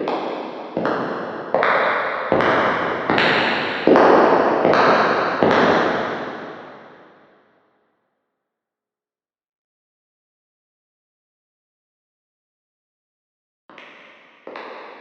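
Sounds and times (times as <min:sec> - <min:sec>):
echoing footsteps: 0:00.0 - 0:07.0.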